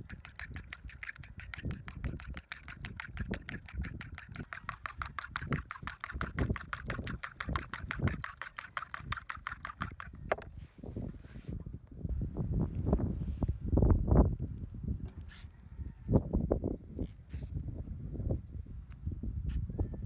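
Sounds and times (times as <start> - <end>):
fast even clicking: 0.0 - 10.4
wind buffeting microphone: 0.0 - 20.0.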